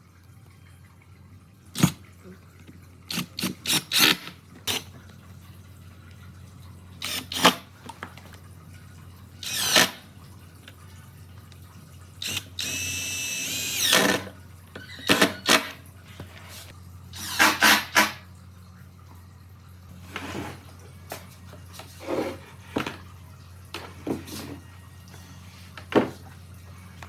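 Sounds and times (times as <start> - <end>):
power drill whine: 7.0 - 7.6, 9.4 - 10.0, 12.2 - 15.7, 17.2 - 18.0.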